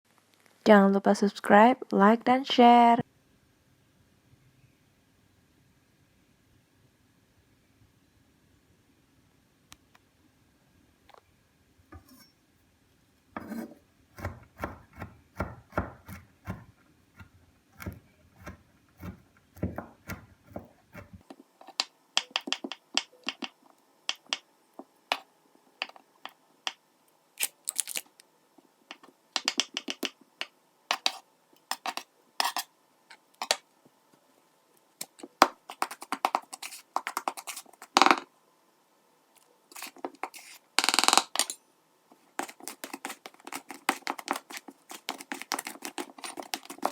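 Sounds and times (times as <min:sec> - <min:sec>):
kitchen utensils clicking and scraping: 0:30.9 - 0:32.7, 0:42.4 - 0:46.9.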